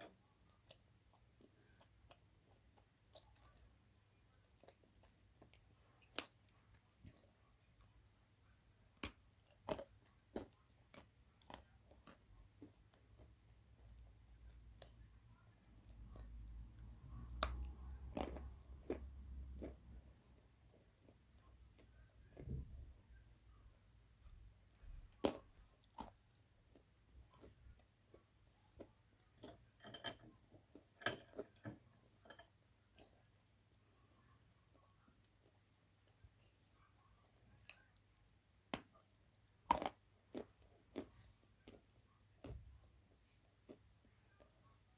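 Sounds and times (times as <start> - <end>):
clay being chewed crunching: 8.7 - 20.1, 23.4 - 42.6.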